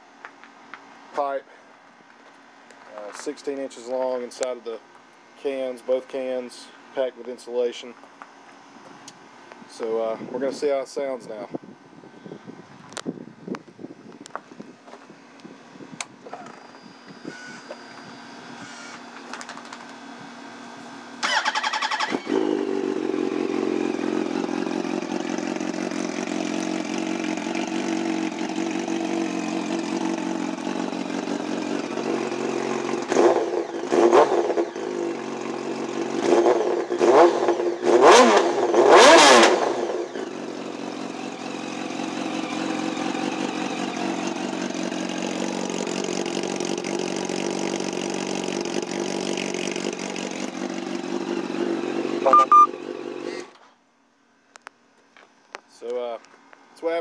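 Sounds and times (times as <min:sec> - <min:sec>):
motorcycle engine starting: 0:21.2 - 0:53.7
motorcycle engine idling: 0:21.4 - 0:33.8, 0:34.6 - 0:36.2, 0:40.0 - 0:53.3
engine revving in blips: 0:31.2 - 0:35.2, 0:36.0 - 0:40.4, 0:51.4 - 0:53.6.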